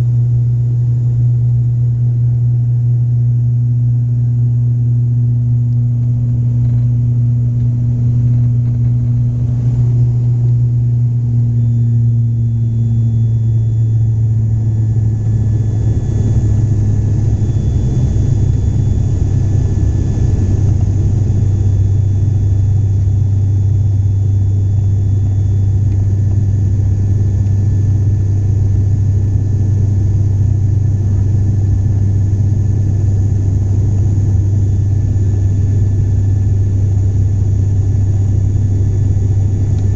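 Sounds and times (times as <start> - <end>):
airliner engines droning: 0.0 - 39.9
faint high whine: 0.0 - 39.9
rushing air noise: 15.7 - 22.6.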